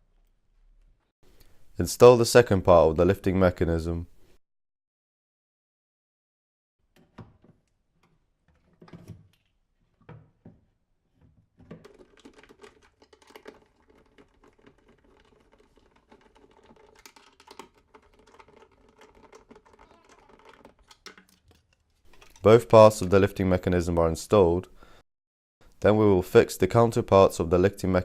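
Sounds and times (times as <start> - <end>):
clicking and knocking of fittings: 6.9 - 23.1.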